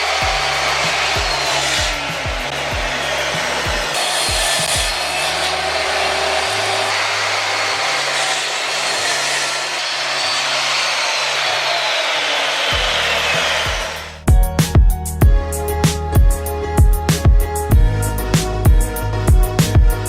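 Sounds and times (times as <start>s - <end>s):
background music: 0.0s - 8.4s, 12.7s - 20.0s
power saw cutting wood: 0.0s - 14.3s.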